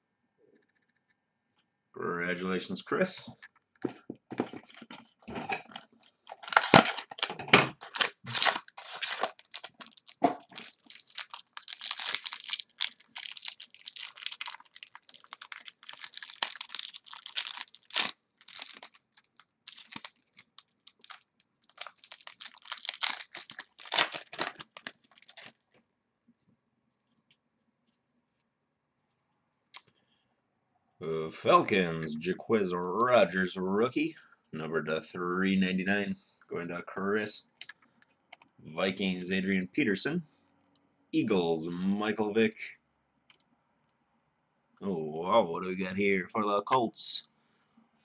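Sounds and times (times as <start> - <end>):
wrapper tearing and crinkling: 5.8 - 25.6.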